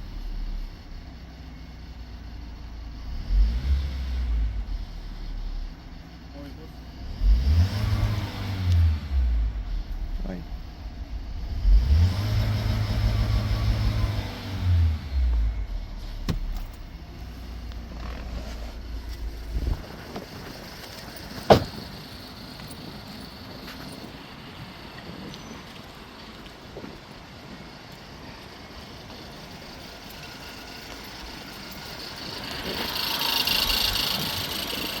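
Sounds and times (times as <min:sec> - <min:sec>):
car engine revving: 0:02.8 - 0:24.4, 0:29.2 - 0:35.0.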